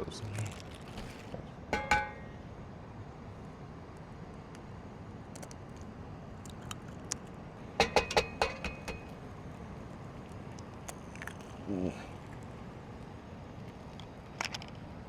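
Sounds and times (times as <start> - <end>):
cooking gear clicking and tapping: 1.7 - 2.2, 7.8 - 9.2.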